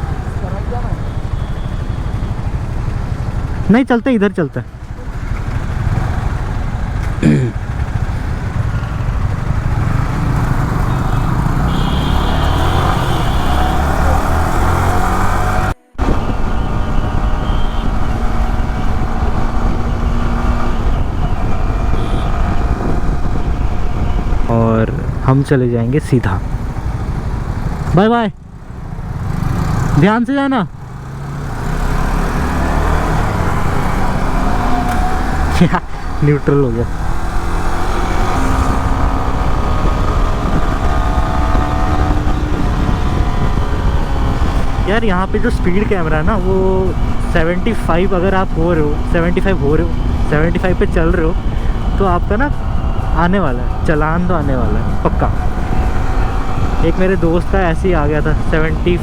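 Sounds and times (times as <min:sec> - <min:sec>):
motorcycle engine running: 0:00.0 - 0:03.7, 0:04.7 - 0:25.2, 0:26.3 - 0:30.1, 0:30.7 - 0:59.0
motorcycle engine idling: 0:04.7 - 0:13.3
wind rushing over microphone: 0:13.4 - 0:25.4, 0:36.8 - 0:59.0.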